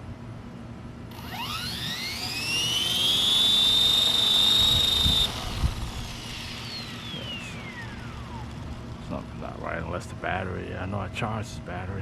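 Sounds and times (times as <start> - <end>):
electric motor whine rising: 1.1 - 9.1.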